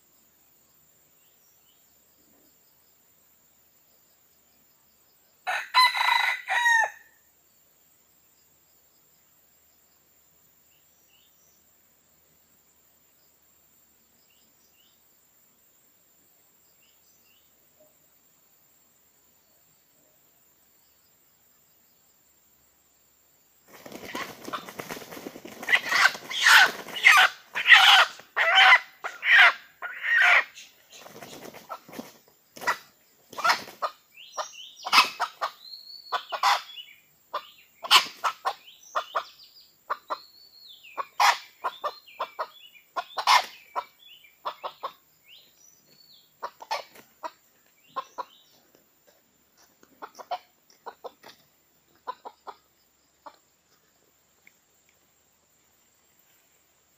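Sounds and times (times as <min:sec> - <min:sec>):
junglefowl clucking and cackling: 0:05.5 - 0:07.0, 0:23.7 - 0:40.2, 0:40.9 - 0:45.0, 0:46.4 - 0:48.5, 0:50.0 - 0:51.4, 0:52.0 - 0:53.4.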